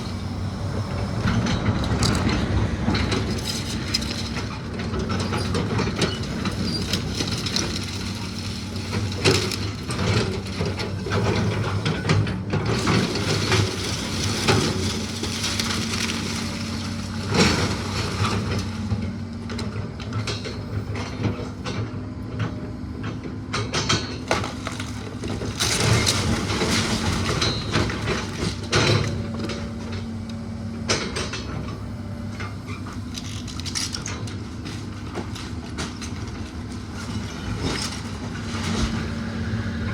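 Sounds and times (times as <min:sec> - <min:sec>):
heavy machine engine running: 0:00.0 - 0:39.9
timber cracking and crashing: 0:12.8 - 0:18.9.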